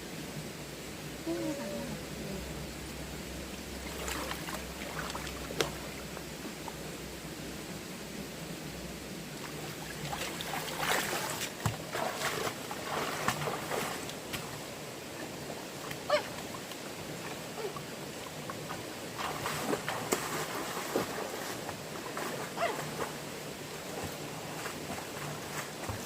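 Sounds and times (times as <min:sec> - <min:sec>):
stream water flowing: 0:00.0 - 0:26.0
splashes and knocks: 0:03.8 - 0:05.9, 0:09.4 - 0:14.6, 0:18.5 - 0:23.2, 0:24.0 - 0:26.0.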